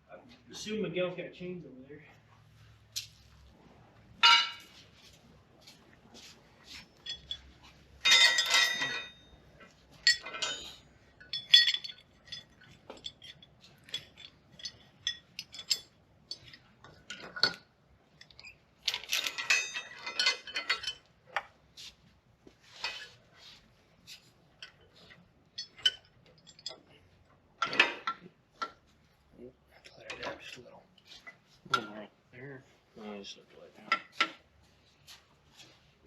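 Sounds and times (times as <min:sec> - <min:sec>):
steel chain rattling and clinking: 0:06.7 - 0:21.1, 0:24.6 - 0:27.0.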